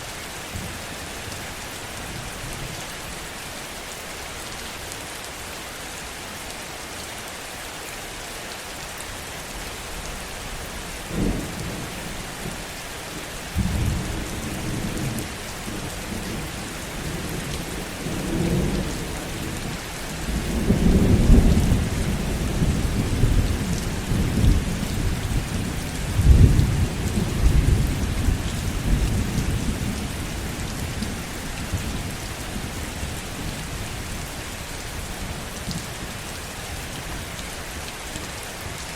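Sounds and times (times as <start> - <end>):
heavy rain: 0.0 - 38.9
thunder crack and rolling rumble: 20.2 - 32.2.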